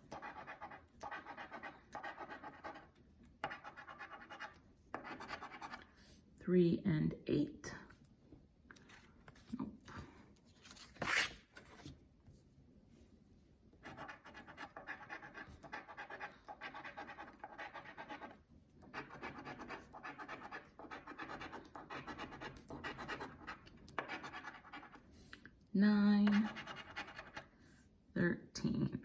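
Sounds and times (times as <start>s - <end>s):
scratching a scratch-off ticket: 13.8s - 25.0s, 26.3s - 27.5s.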